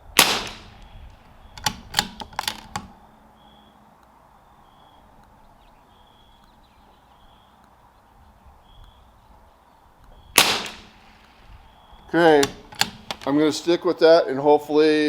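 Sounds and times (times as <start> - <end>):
rifle shot: 0.1 - 3.0, 10.4 - 13.3
faint high chirps: 2.9 - 10.4, 11.4 - 12.2.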